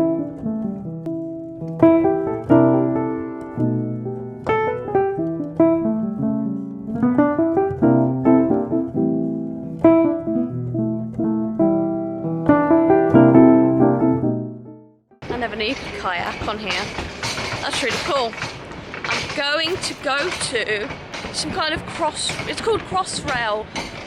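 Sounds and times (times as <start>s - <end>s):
solo piano melody: 0.0s - 15.2s.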